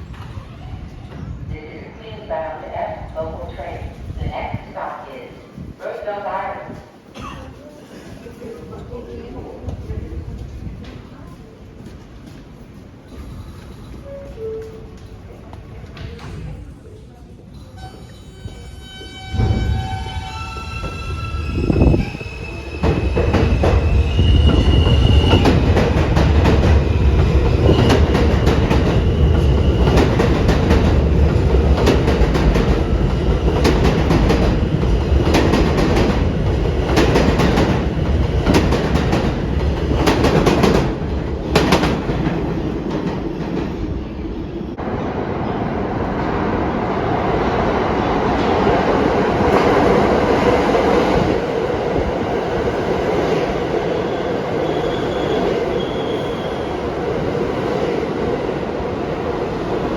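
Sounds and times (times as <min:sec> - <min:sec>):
subway train rumbling: 0:00.0 - 0:59.9.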